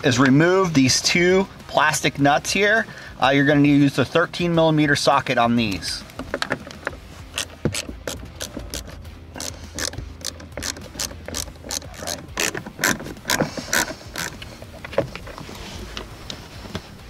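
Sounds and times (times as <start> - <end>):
ratchet wrench clicking: 6.4 - 14.5.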